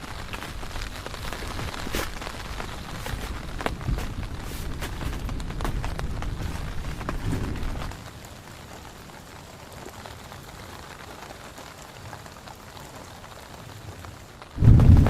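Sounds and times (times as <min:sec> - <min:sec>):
heavy rain falling: 0:00.0 - 0:15.0
loud thunderclap: 0:14.6 - 0:15.0
low rumble of thunder: 0:14.6 - 0:15.0.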